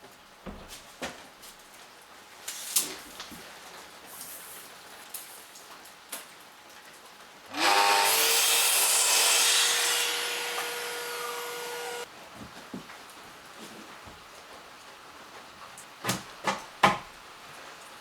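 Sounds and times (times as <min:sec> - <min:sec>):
electric saw cutting wood: 0:07.5 - 0:12.1.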